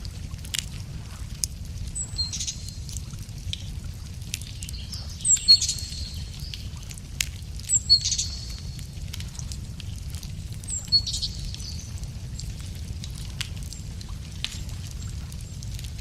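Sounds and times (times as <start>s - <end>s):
wood fire crackling and popping: 0.0s - 16.0s
songbird singing: 2.0s - 2.9s, 4.4s - 6.8s, 7.7s - 8.8s, 10.6s - 12.5s.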